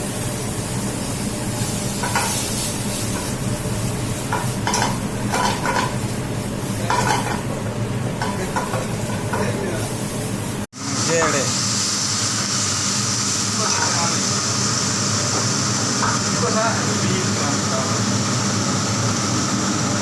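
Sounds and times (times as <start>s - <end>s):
food sizzling in hot oil: 0.0s - 20.0s
utensil scraping and clinking in pan: 2.0s - 3.4s, 4.2s - 6.0s, 6.8s - 7.5s, 8.2s - 9.6s.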